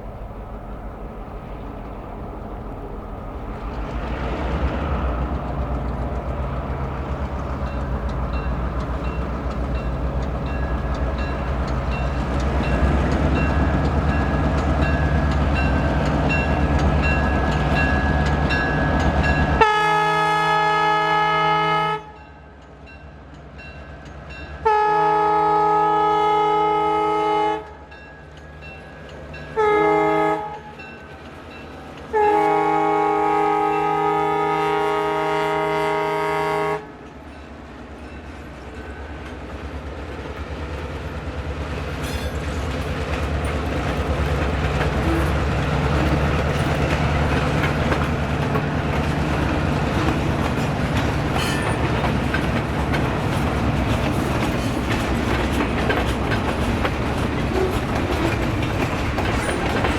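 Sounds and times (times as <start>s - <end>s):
locomotive rumble: 0.0s - 21.3s, 28.3s - 59.9s
train rattling: 0.0s - 59.9s
locomotive air horn: 19.6s - 22.2s, 24.6s - 27.8s, 29.6s - 30.7s, 32.1s - 37.0s.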